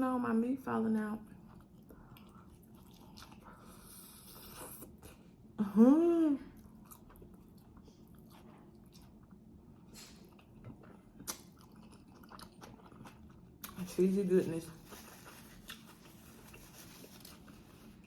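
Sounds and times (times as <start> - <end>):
chewing and wet mouth sounds: 1.2 - 5.4, 6.5 - 18.0.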